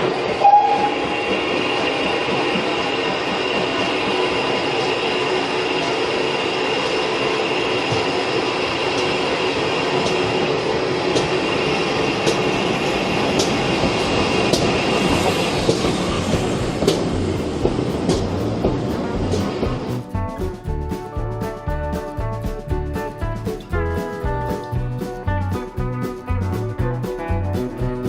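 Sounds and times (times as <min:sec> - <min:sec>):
rail clicks: 0:00.0 - 0:28.0
train rumbling on rails: 0:00.0 - 0:28.0.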